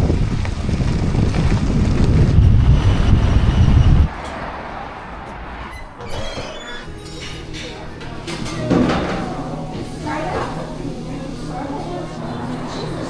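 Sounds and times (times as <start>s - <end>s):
wind buffeting microphone: 0.0s - 4.1s.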